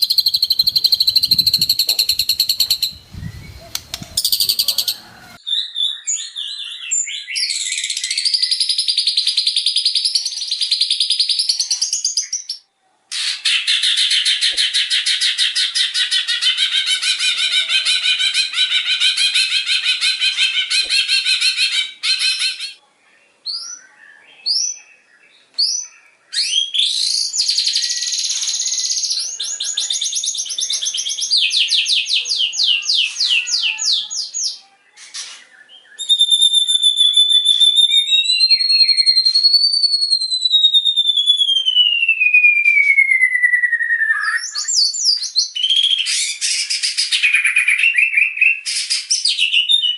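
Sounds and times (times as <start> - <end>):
long gliding bird whistle: 0.0 - 5.4
rapid rattling bird calls: 0.0 - 5.4
bird singing: 0.0 - 12.7, 13.9 - 49.9.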